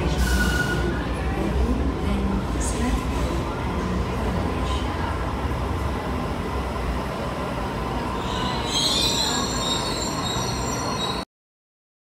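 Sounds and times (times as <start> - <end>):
train rumbling: 0.0 - 11.2
high-pitched brake squeal: 0.2 - 1.0, 8.2 - 11.3.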